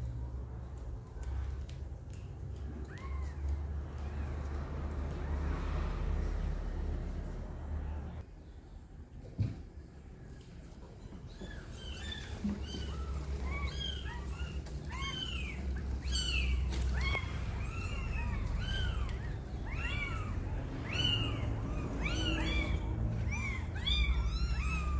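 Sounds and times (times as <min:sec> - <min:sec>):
kittens mewing: 0:11.3 - 0:24.9.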